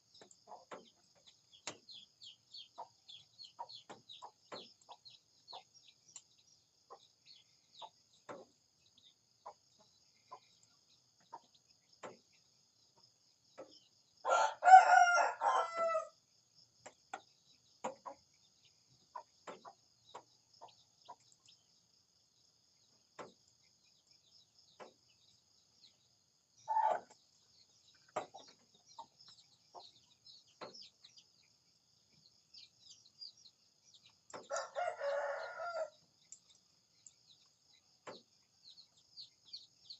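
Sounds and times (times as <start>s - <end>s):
rooster crowing: 14.3s - 16.2s, 34.5s - 36.0s.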